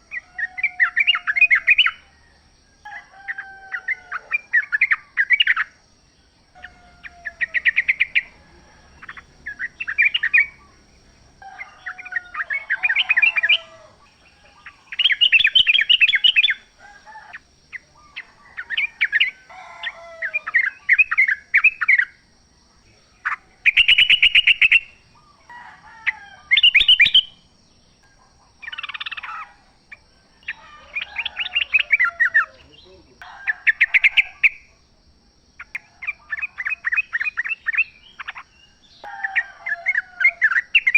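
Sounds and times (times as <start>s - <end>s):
bulbuls chattering song: 0.0s - 40.9s.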